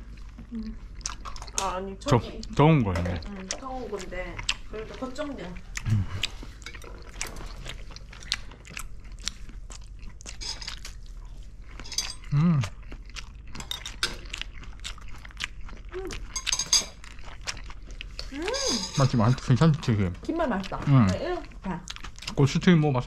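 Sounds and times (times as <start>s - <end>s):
chewing and crunching snacks: 0.0s - 23.0s
person humming: 5.8s - 6.2s, 12.3s - 12.7s.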